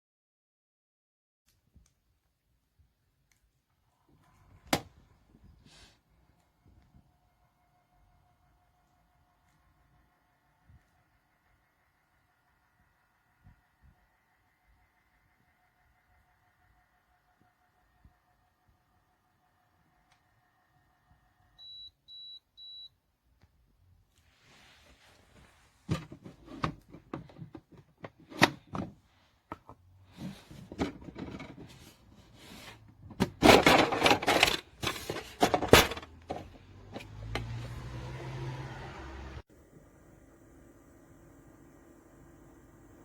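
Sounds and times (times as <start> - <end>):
faint steady tone: 6.6 - 23.1.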